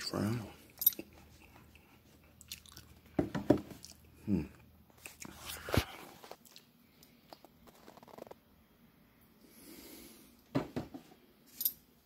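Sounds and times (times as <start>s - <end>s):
person chewing and biting: 0.9s - 3.0s.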